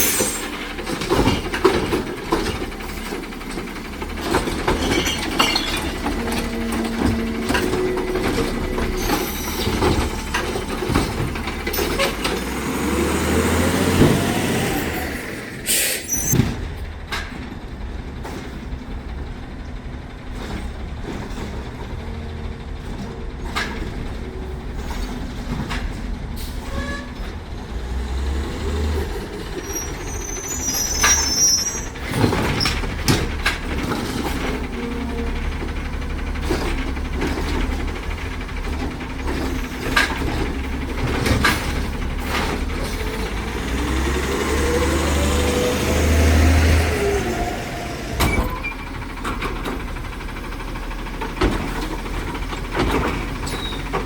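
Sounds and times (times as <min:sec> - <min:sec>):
air brake hiss: 0:00.0 - 0:00.6, 0:15.6 - 0:16.4
knocks and clanks: 0:00.0 - 0:14.4, 0:20.2 - 0:54.0
garbage truck diesel engine revving: 0:00.0 - 0:54.0.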